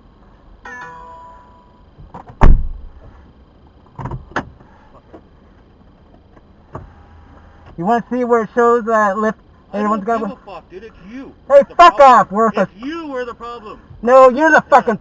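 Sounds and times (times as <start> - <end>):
electronic chime: 0.6 - 1.8
car door slamming: 2.2 - 2.9.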